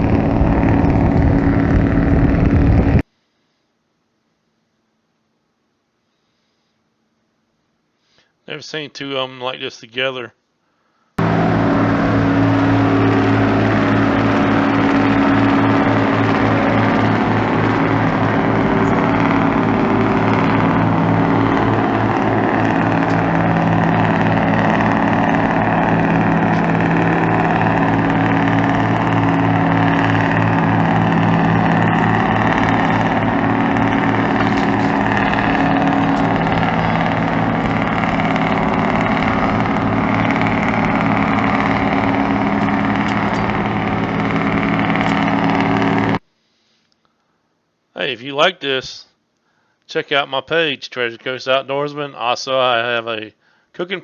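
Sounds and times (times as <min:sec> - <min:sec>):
tugboat engine droning: 0:00.0 - 0:03.0, 0:11.2 - 0:46.2.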